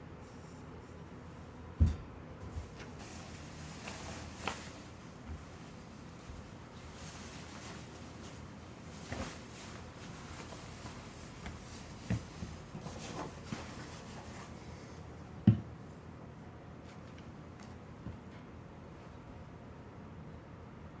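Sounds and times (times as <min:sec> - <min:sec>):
shoes scuffing on floor: 0:01.8 - 0:14.6.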